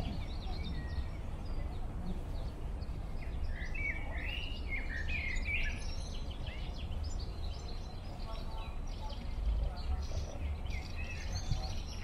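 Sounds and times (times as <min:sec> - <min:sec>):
songbirds singing and chirping: 0:00.0 - 0:12.0
steady low rumble: 0:00.0 - 0:12.0.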